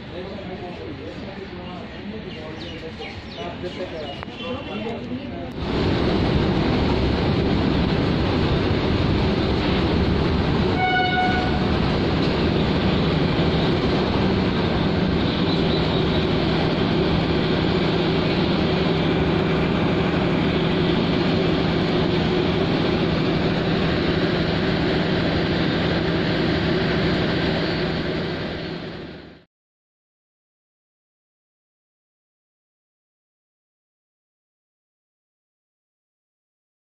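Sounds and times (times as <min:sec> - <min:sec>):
train running on tracks: 0:00.0 - 0:29.5
high-pitched train horn blast: 0:10.7 - 0:11.8.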